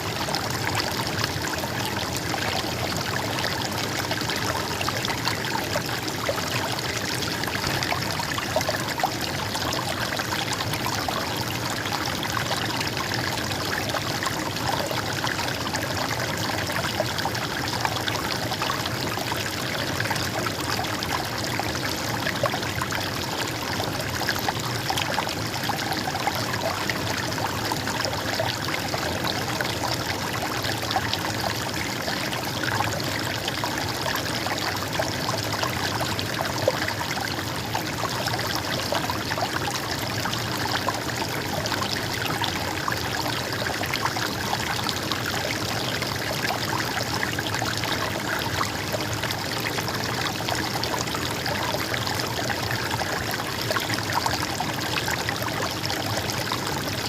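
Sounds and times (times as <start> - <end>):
stream water flowing: 0.0 - 57.0.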